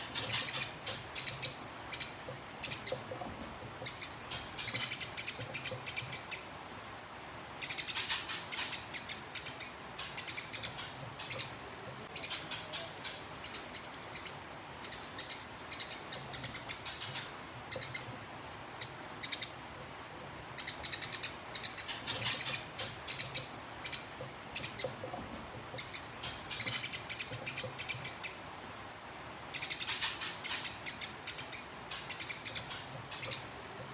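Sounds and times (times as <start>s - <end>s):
songbird rapid chatter: 0.0s - 3.1s.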